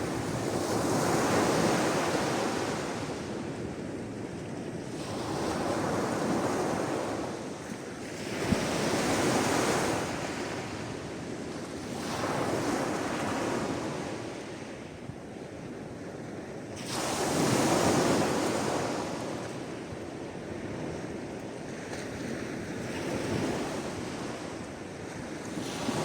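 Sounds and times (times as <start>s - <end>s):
sea waves washing ashore: 0.0s - 3.7s, 16.8s - 26.0s.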